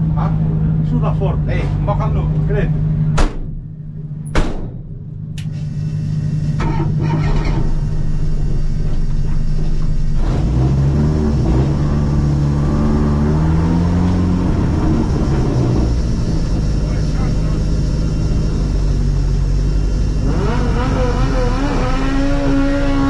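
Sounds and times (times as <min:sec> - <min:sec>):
race car engine revving: 0:09.5 - 0:23.0.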